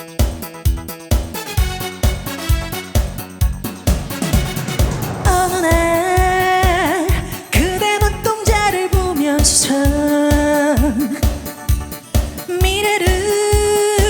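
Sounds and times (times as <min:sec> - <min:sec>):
band with dance beat: 0:00.0 - 0:14.0
woman singing: 0:05.3 - 0:11.6, 0:12.5 - 0:14.0.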